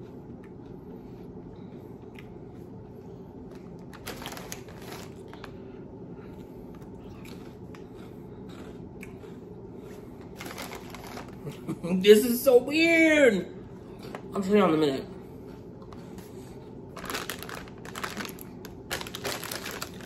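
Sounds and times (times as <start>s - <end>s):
snacks crunching: 1.7s - 11.7s, 15.3s - 20.0s
snack bag rustling: 3.5s - 5.7s, 9.2s - 11.6s, 15.9s - 20.0s.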